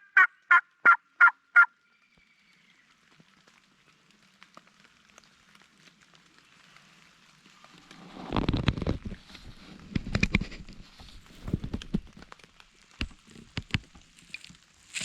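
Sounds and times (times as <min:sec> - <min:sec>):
rustling and knocking: 0:08.2 - 0:14.2.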